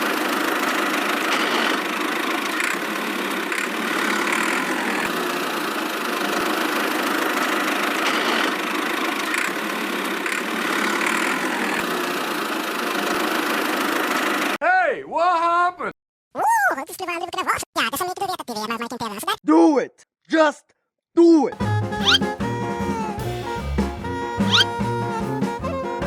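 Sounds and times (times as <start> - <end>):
small engine running: 0.0 - 14.6, 22.0 - 26.0.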